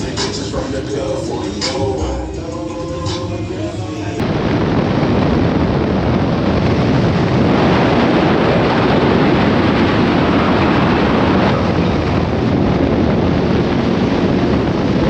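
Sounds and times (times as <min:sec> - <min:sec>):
music: 0:00.0 - 0:04.2
wind buffeting microphone: 0:00.0 - 0:15.0.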